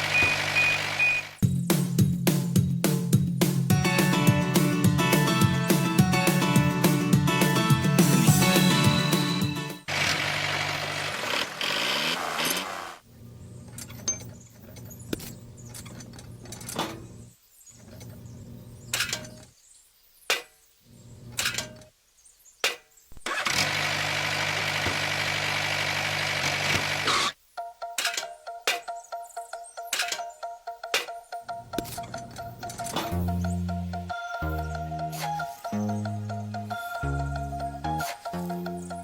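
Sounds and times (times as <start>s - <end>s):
small engine running: 0.0s - 1.4s, 9.8s - 13.0s, 23.2s - 27.4s.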